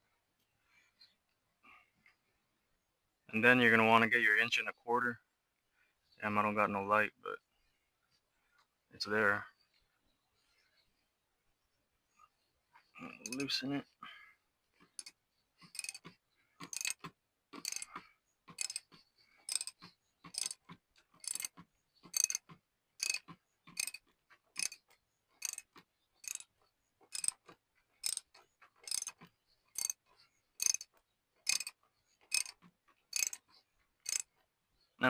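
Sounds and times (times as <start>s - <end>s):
socket ratchet clicks: 15.8s - 16.0s, 16.6s - 17.9s, 18.5s - 18.9s, 19.5s - 20.6s, 21.2s - 21.5s, 22.1s - 22.4s, 23.0s - 24.0s, 24.6s - 24.8s, 25.4s - 26.4s, 27.1s - 27.4s, 28.0s - 29.2s, 29.8s - 30.0s, 30.6s - 30.9s, 31.5s - 31.7s, 32.3s - 32.6s, 33.2s - 33.4s.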